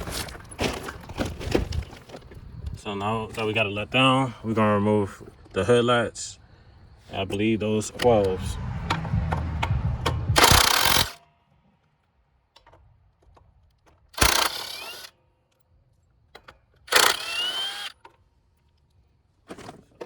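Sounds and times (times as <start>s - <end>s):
cordless power tool whine: 10.3s - 11.2s, 14.2s - 15.1s, 16.9s - 18.0s.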